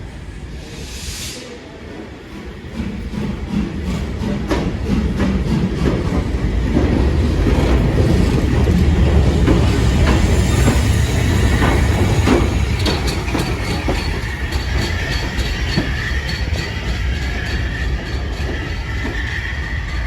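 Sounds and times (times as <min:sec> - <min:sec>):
train rumbling past: 0:00.0 - 0:20.0
wheels clicking over rail joints: 0:04.5 - 0:19.3
wheel squeal: 0:08.2 - 0:20.0.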